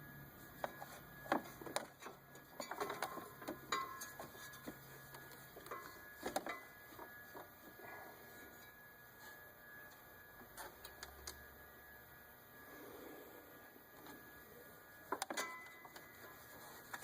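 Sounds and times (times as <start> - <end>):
metal tools clicking and clinking: 2.0 - 6.7, 15.2 - 16.1.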